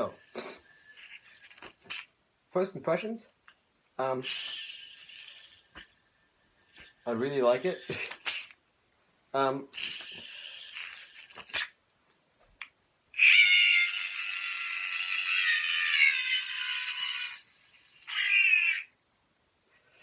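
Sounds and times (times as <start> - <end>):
yo-yo squealing high-pitched: 0.0 - 2.1, 4.2 - 8.6, 9.8 - 11.8, 13.2 - 19.0.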